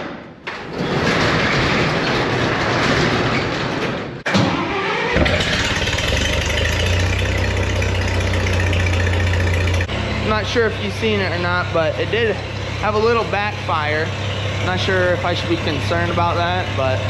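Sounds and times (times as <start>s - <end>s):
tractor engine cranking and idling: 0.0s - 17.0s
engine backfire pop: 5.2s - 7.2s.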